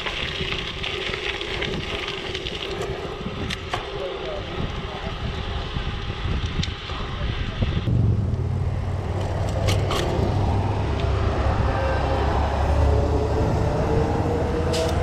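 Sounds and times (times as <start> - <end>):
bike tyres rolling over gravel: 0.0 - 11.2
wind on microphone: 0.1 - 15.0
deep steady rumble: 4.3 - 15.0.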